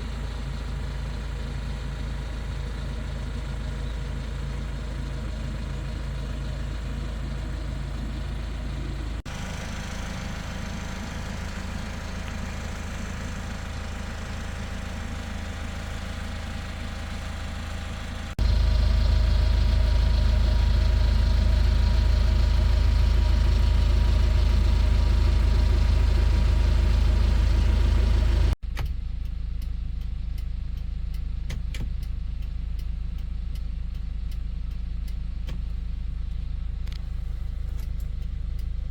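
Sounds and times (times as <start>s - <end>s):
truck engine idling: 0.0s - 38.9s
light ticks: 12.2s - 12.5s, 28.8s - 38.9s.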